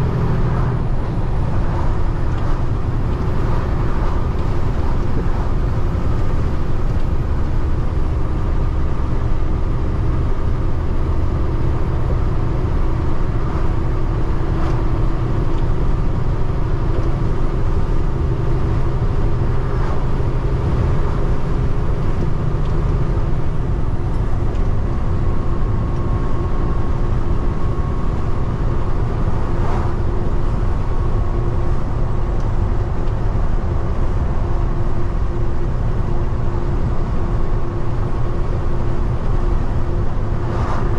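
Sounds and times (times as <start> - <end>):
truck engine and road noise: 0.0 - 40.9.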